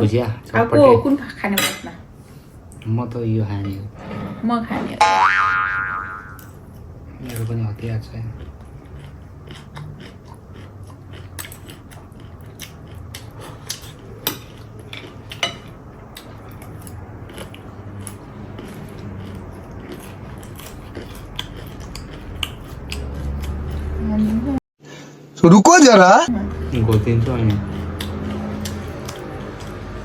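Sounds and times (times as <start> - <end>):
cutlery clinking against dishes: 1.5 - 2.0, 13.7 - 15.8
chewing: 8.1 - 24.6, 26.5 - 30.0.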